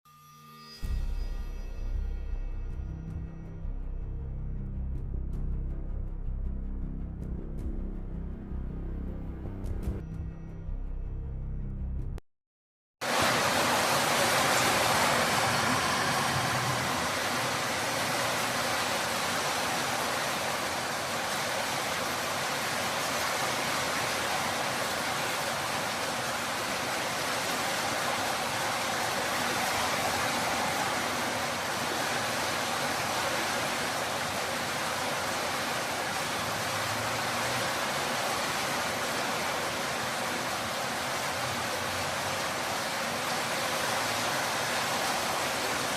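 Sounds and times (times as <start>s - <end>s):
torrential rain hissing: 13.0s - 45.9s.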